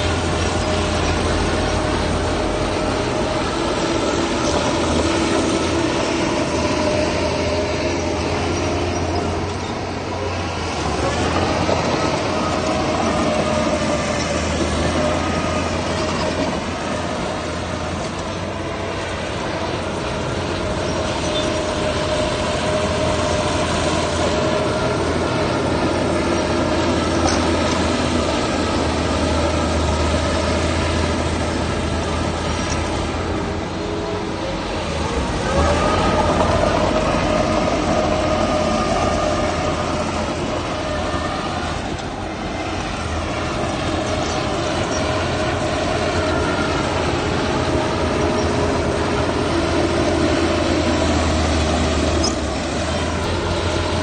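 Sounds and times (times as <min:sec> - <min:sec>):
diesel engine running under load: 0:00.0 - 0:54.0.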